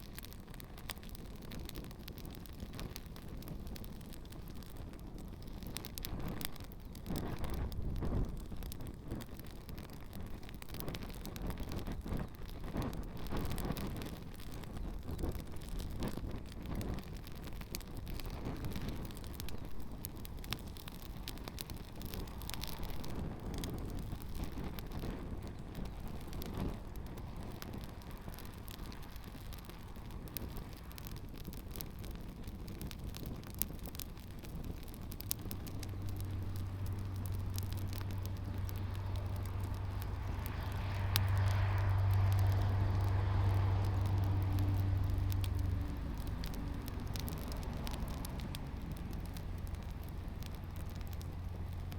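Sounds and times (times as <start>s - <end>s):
campfire crackling and popping: 0.0s - 51.9s
wind noise: 0.0s - 51.9s
steady low hum: 34.7s - 51.9s.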